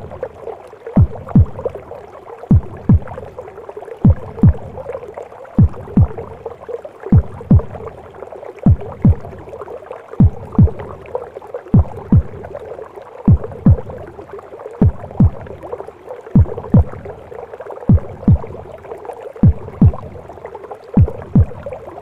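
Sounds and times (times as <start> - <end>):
heartbeat thumps: 1.0 - 1.8, 2.5 - 3.4, 4.0 - 4.9, 5.6 - 6.5, 7.1 - 8.0, 8.6 - 9.6, 10.2 - 11.0, 11.7 - 12.6, 13.3 - 14.1, 14.8 - 15.7, 16.4 - 17.2, 17.9 - 18.8, 19.4 - 20.4, 21.0 - 22.0.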